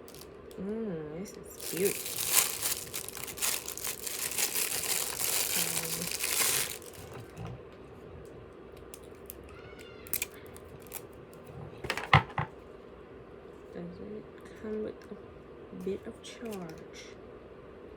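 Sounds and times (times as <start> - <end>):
plastic packaging crinkling and tearing: 0.0 - 0.3, 1.4 - 7.4, 10.0 - 11.0.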